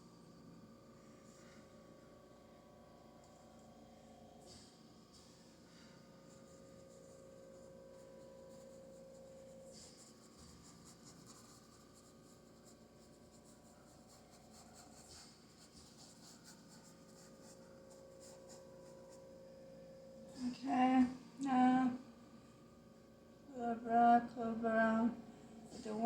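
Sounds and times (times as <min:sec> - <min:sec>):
faint hum: 0:00.0 - 0:26.0
paintbrush scratching on canvas: 0:06.3 - 0:19.5.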